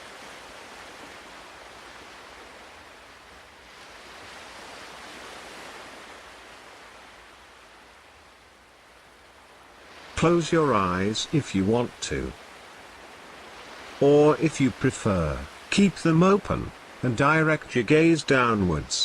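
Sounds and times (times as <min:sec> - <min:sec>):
surf hissing: 0:09.8 - 0:19.0.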